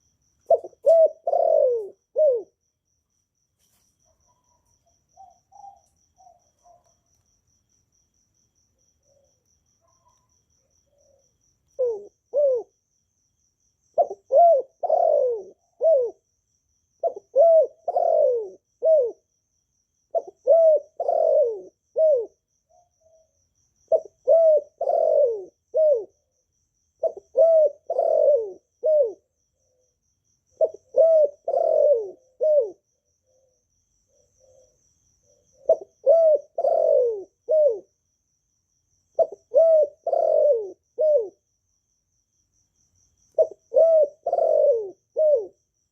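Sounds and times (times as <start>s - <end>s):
dove cooing: 0.0s - 2.6s, 4.1s - 6.9s, 9.0s - 12.8s, 14.0s - 16.3s, 17.0s - 19.3s, 20.1s - 23.3s, 23.9s - 26.3s, 27.0s - 30.0s, 30.6s - 37.9s, 39.2s - 41.4s, 43.3s - 45.6s.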